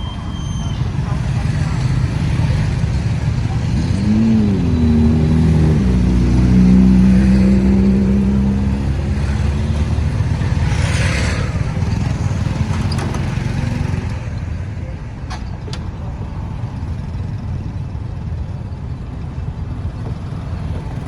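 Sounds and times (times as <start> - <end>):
low traffic rumble: 0.0 - 21.0
vehicle engine revving: 0.8 - 14.2.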